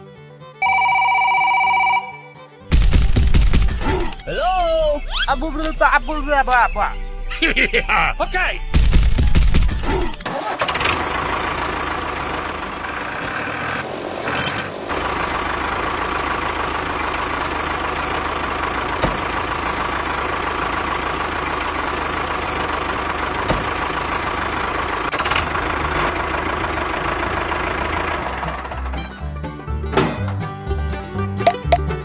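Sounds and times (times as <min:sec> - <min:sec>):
mini tractor engine running: 0:08.7 - 0:32.0.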